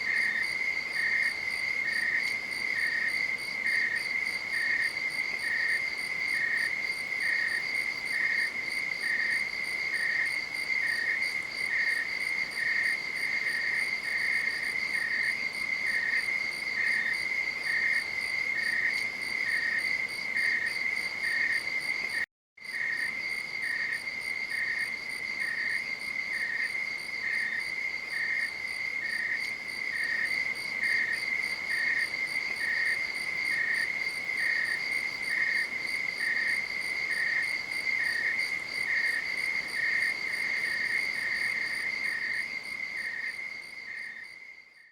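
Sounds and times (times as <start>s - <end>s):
crickets trilling: 0.0s - 44.8s
insect chirping: 0.0s - 44.9s.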